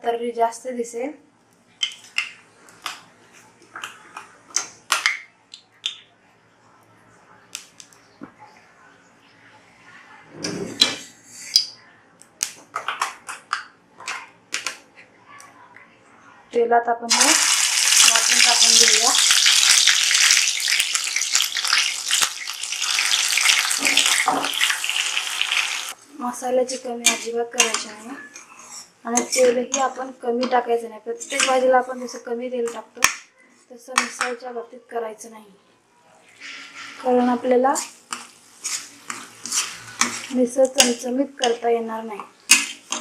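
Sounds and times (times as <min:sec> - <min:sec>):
kitchen utensils clicking and tapping: 0:01.8 - 0:03.0, 0:27.0 - 0:28.5, 0:31.2 - 0:33.2, 0:37.8 - 0:43.0
paste sizzling in hot oil: 0:17.1 - 0:26.0, 0:37.7 - 0:41.0.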